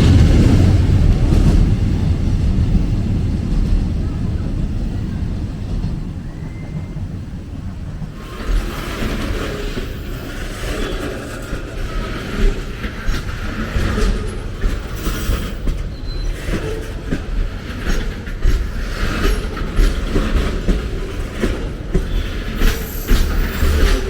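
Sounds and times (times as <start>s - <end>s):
train cars rumbling past: 0.0s - 24.0s
wheels knocking on rail joints: 7.6s - 24.0s.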